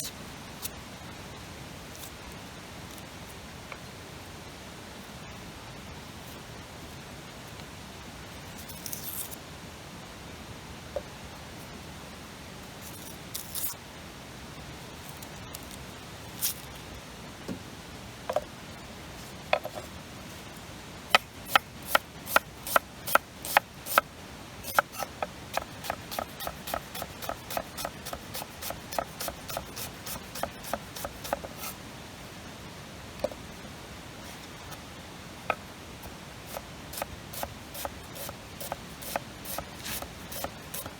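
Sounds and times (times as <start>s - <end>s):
knife chopping on cutting board: 21.2s - 24.0s, 24.7s - 31.7s, 36.5s - 40.9s.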